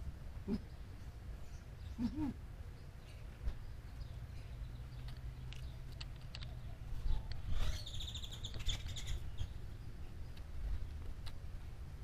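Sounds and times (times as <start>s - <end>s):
bird trilling: 7.1s - 9.5s.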